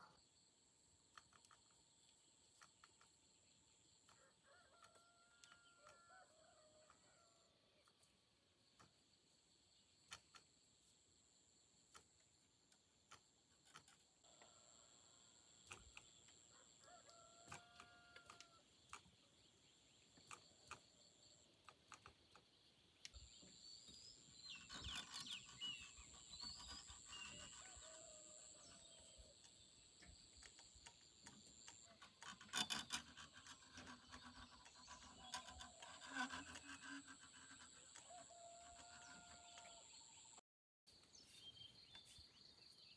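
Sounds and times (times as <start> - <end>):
small clicks and knocks: 1.1 - 6.0, 10.0 - 10.6, 11.9 - 14.5, 15.6 - 27.9, 28.5 - 39.7.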